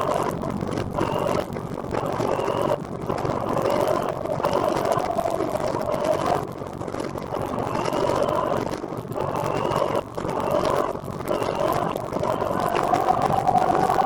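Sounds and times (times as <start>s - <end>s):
wavering engine-like hum: 11.3s - 14.0s.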